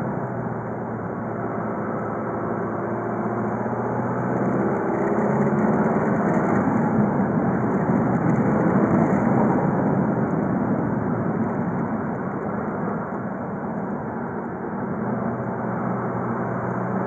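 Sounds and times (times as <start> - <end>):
car engine running while driving: 0.0 - 17.0
road noise: 0.0 - 17.0.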